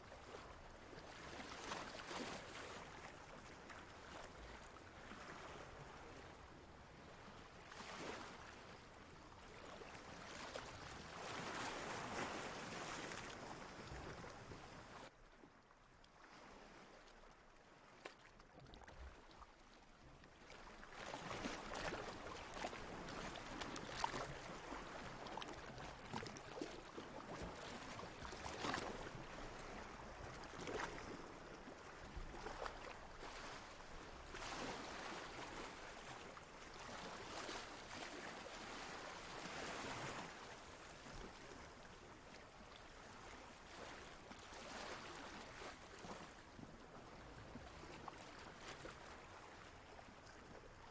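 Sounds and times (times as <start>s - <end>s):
water lapping and sloshing: 0.0s - 50.9s
small water splashes: 16.1s - 46.4s.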